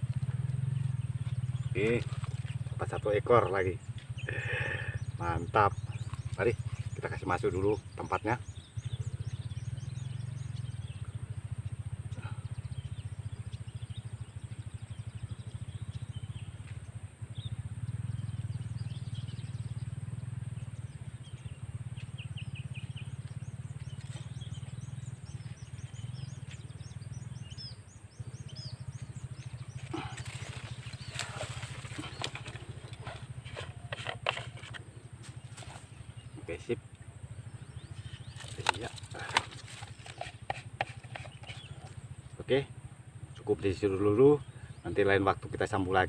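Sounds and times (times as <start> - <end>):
steady low rumble: 0.0 - 44.7
faint bird chirps: 0.0 - 46.0
handling noise rustling and clicking: 29.8 - 35.9.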